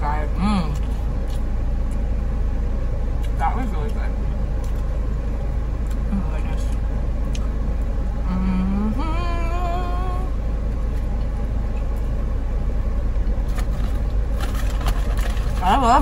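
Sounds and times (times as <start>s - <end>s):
car engine idling: 0.0s - 16.0s
person humming: 8.2s - 10.3s.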